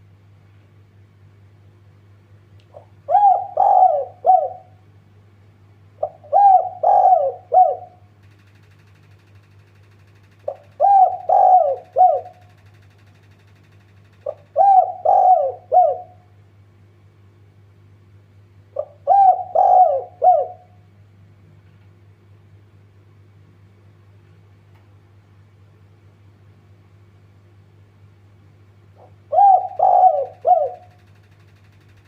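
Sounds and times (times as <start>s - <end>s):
faint low hum: 0.0s - 32.0s
dove cooing: 2.7s - 4.8s, 6.0s - 8.1s, 10.4s - 12.6s, 14.2s - 16.3s, 18.8s - 20.8s, 29.0s - 31.2s.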